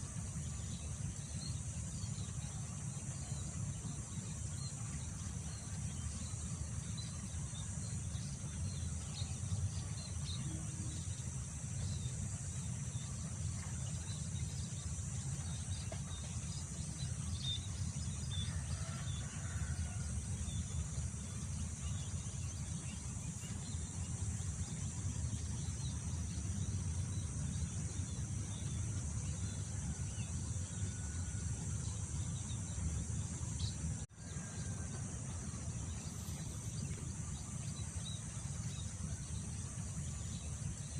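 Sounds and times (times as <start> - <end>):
crickets droning: 0.0 - 40.9.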